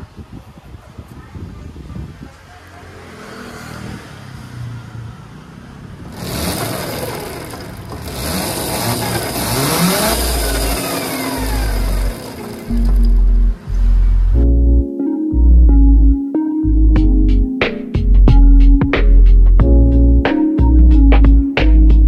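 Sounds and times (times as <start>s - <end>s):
scooter drive chain rattling: 6.1s - 13.7s.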